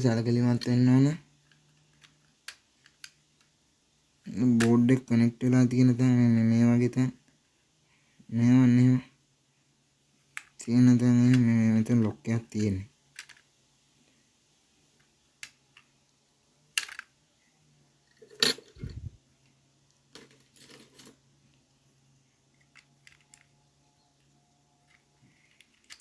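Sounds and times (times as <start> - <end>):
plastic parts clicking: 1.4 - 3.5, 12.5 - 13.5, 16.7 - 17.1, 22.5 - 23.6, 24.8 - 26.0.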